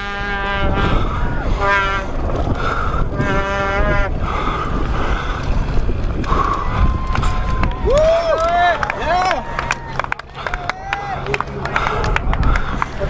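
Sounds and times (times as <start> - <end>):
heavy low rumble: 0.0 - 13.0
wind buffeting microphone: 0.0 - 13.0.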